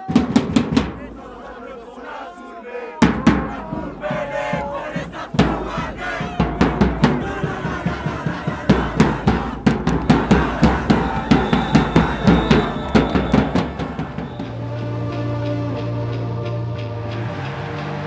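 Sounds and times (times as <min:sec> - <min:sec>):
fast steady drumming: 0:00.0 - 0:01.8, 0:03.0 - 0:14.6.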